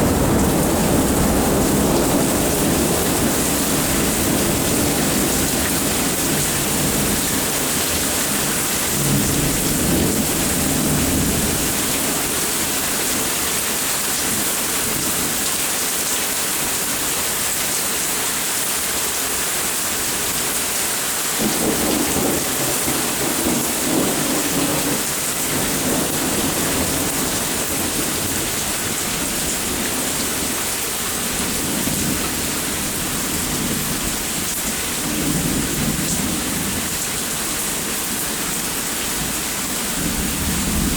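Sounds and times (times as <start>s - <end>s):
thunder rumbling: 0.0s - 13.1s, 21.4s - 30.6s, 40.0s - 40.9s
steady rain: 0.0s - 40.9s.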